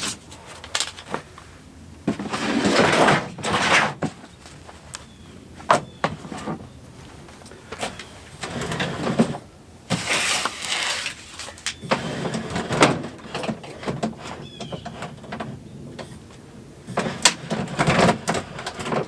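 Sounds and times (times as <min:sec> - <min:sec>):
rustling and scraping: 0:00.0 - 0:19.0
gear knocks and clicks: 0:17.0 - 0:19.0.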